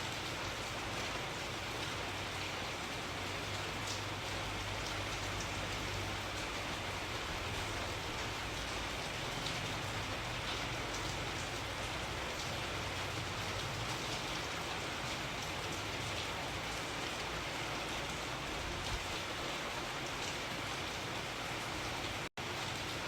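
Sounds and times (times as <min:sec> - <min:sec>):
rain hissing: 0:00.0 - 0:23.0
raindrops pattering on a surface: 0:00.0 - 0:23.0.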